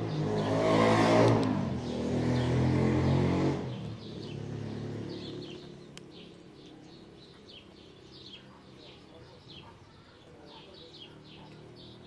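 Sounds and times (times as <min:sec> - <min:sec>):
passing car engine: 0:00.0 - 0:08.4
small birds chirping: 0:00.0 - 0:12.0.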